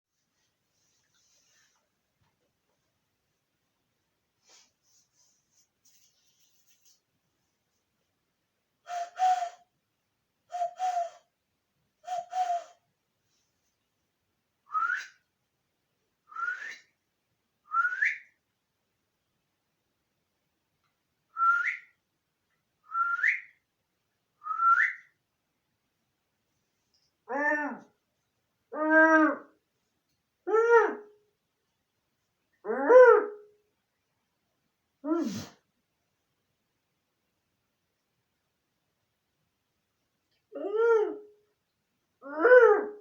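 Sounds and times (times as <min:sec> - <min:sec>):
short whistled calls: 0:08.9 - 0:09.7, 0:10.5 - 0:11.3, 0:12.0 - 0:12.8, 0:14.7 - 0:15.2, 0:16.3 - 0:16.9, 0:17.7 - 0:18.4, 0:21.4 - 0:22.0, 0:22.9 - 0:23.6, 0:24.4 - 0:25.2.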